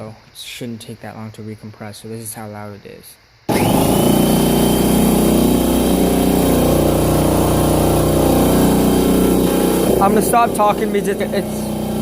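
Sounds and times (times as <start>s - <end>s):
air compressor running: 3.5s - 12.0s.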